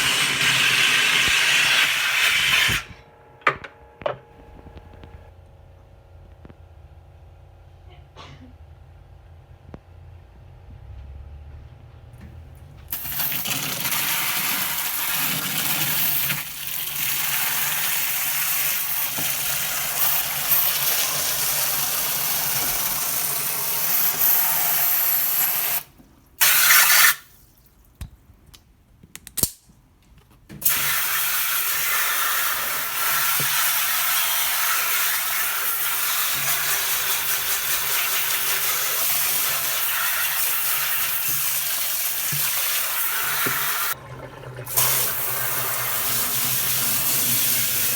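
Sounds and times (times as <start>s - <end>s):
water rushing from a tap: 0.0s - 2.9s, 12.9s - 27.3s, 30.6s - 47.9s.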